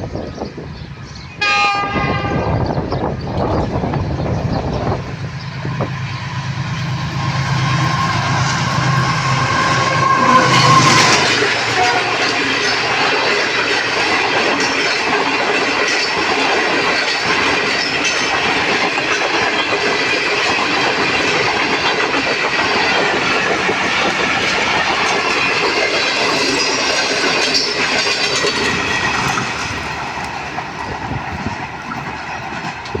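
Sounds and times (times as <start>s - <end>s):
train wheels clattering over joints: 2.9s - 33.0s.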